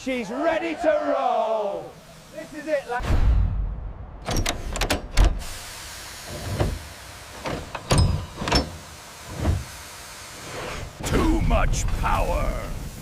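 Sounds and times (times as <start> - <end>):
steady steam hiss: 0.0 - 3.1, 4.3 - 13.0
steam locomotive exhaust chuffs: 5.3 - 13.0.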